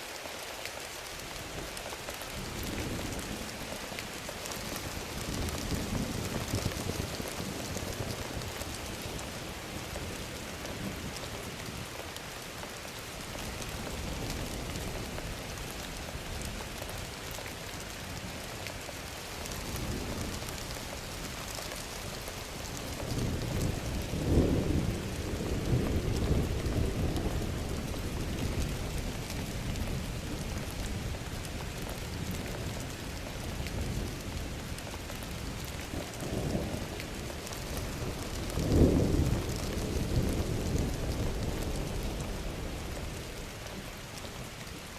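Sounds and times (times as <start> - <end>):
steady rain: 0.0 - 44.9
rolling thunder: 22.7 - 31.2, 35.5 - 43.5.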